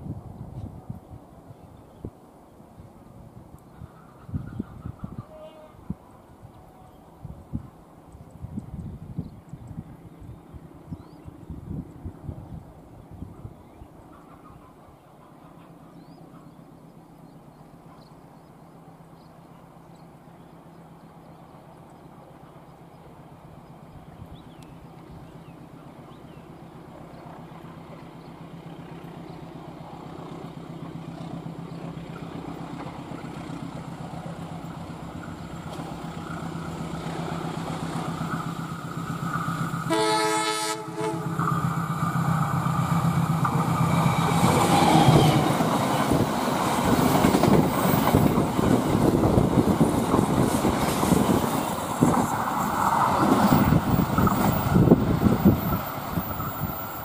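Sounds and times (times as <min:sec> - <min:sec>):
diesel locomotive engine drone: 0:00.0 - 0:57.0
locomotive horn blast: 0:39.8 - 0:41.6
train wheels clattering on rails: 0:41.4 - 0:57.0.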